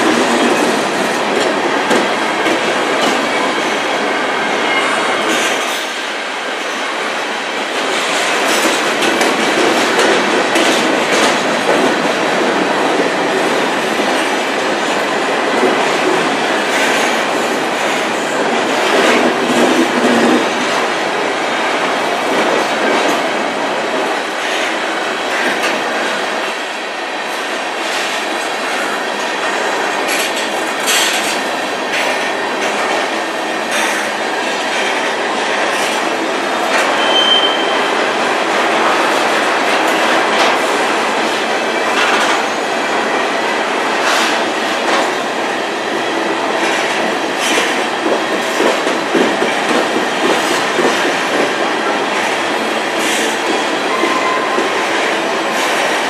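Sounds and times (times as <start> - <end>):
freight train wheels rumbling: 0.0 - 56.0
high wheel squeal: 36.9 - 37.9.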